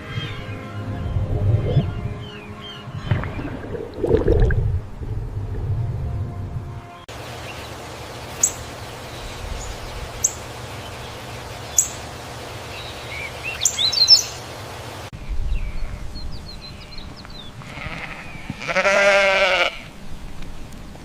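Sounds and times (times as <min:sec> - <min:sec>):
outdoor hiss: 0:07.1 - 0:21.0
bird chirping: 0:07.4 - 0:14.4.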